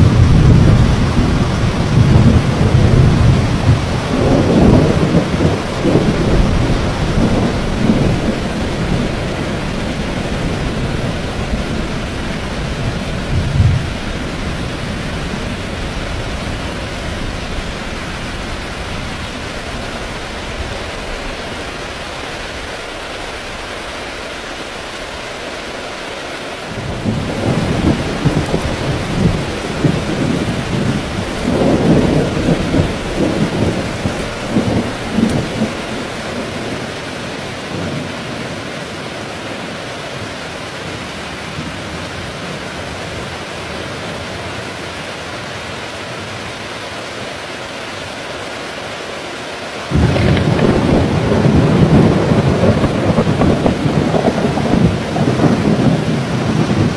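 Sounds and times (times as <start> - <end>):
thunder rumbling and cracking: 0.0 - 23.7, 26.8 - 38.6, 49.9 - 56.9
heavy rain falling: 0.0 - 56.9.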